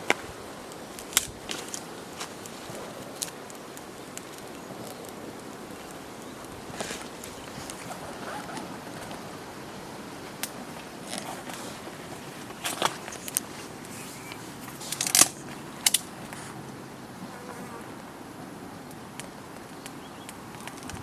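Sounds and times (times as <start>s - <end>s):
rustling: 0.0s - 16.6s
outdoor background hiss: 0.0s - 21.0s.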